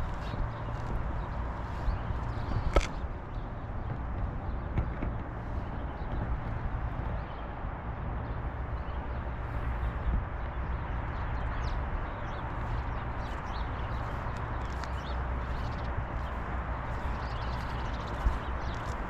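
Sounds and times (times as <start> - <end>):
footsteps on pavement: 0.0 - 5.3, 11.6 - 19.0
wind rumbling on microphone: 0.0 - 19.0.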